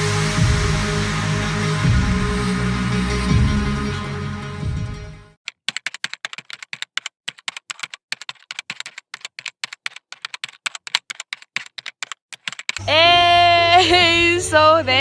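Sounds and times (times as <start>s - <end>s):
music: 0.0s - 5.4s, 12.9s - 15.0s
keyboard typing: 5.4s - 12.8s.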